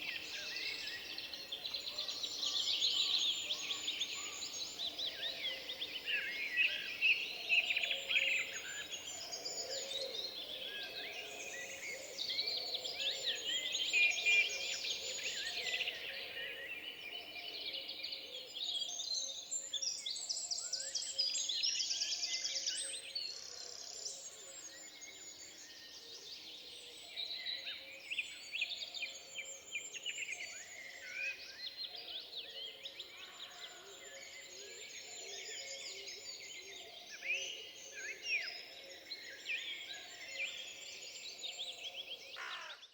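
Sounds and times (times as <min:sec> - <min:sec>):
songbirds singing: 0:00.0 - 0:42.9.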